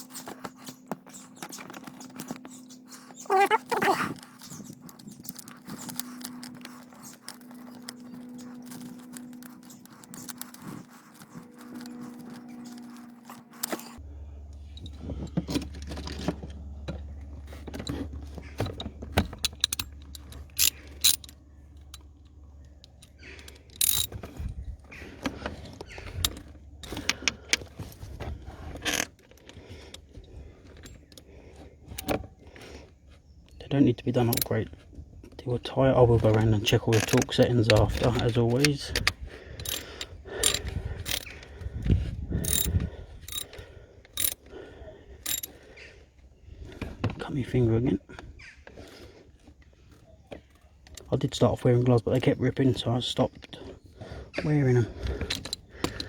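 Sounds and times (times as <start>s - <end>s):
tools scraping: 0.0s - 14.0s, 14.7s - 32.9s, 34.2s - 34.6s, 36.0s - 41.5s, 42.4s - 44.5s, 45.2s - 45.6s, 55.0s - 56.0s
metal tools clinking: 17.7s - 22.1s, 22.8s - 24.4s, 34.1s - 34.6s, 36.2s - 41.4s, 42.4s - 44.4s, 45.2s - 45.6s, 55.1s - 56.0s.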